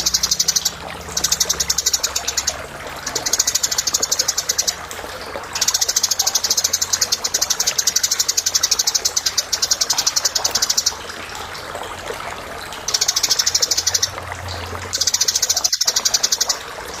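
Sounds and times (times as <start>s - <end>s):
sparrow chirping: 0.0s - 4.8s.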